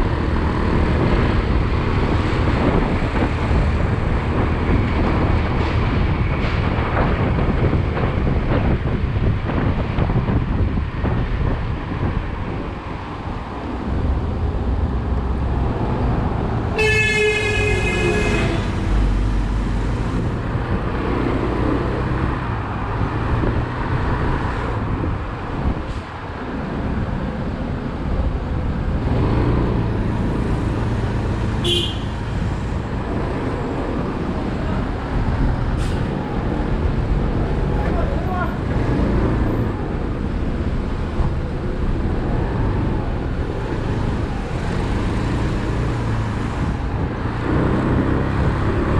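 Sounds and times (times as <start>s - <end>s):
motorcycle riding in traffic: 0.0s - 48.9s
vehicle horn honking: 16.8s - 18.8s, 31.6s - 32.2s.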